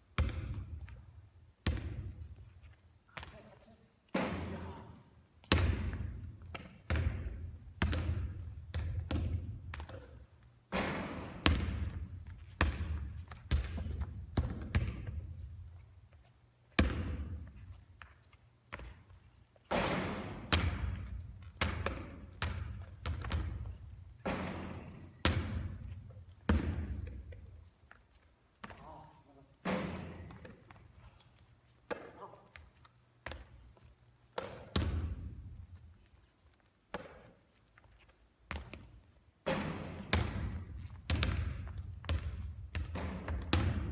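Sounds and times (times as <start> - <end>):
basketball bouncing on hard surfaces: 0.1 - 1.0, 1.6 - 2.4, 5.4 - 15.6, 16.7 - 18.1, 18.7 - 27.6, 33.2 - 35.7, 36.9 - 37.4, 38.5 - 43.9.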